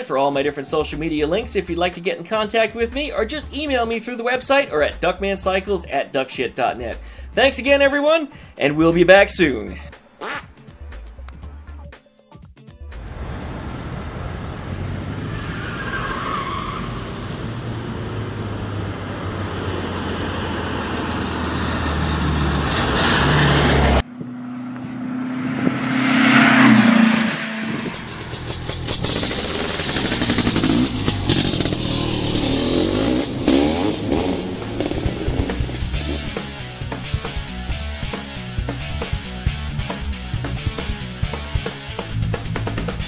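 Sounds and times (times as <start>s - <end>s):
car engine running: 12.9s - 15.6s, 17.3s - 43.0s
car passing close by: 13.0s - 28.6s.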